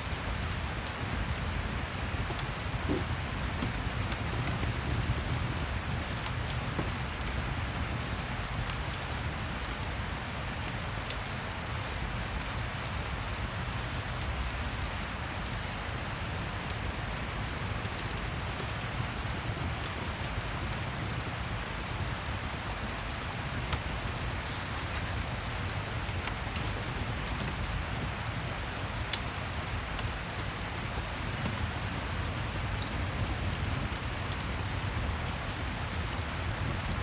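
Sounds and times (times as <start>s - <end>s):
steady rain falling: 0.0s - 37.0s
fire crackling: 0.1s - 10.4s, 20.6s - 35.9s.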